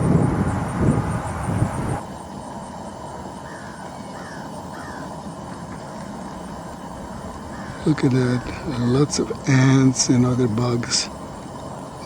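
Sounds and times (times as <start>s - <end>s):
crows cawing: 3.4s - 5.2s, 7.4s - 9.1s.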